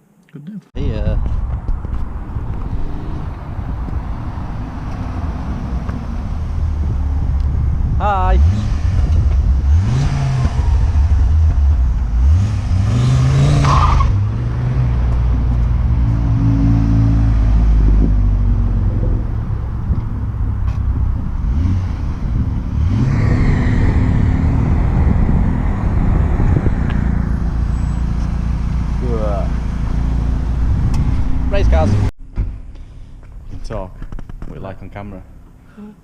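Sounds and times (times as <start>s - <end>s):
car engine revving: 1.9s - 35.6s.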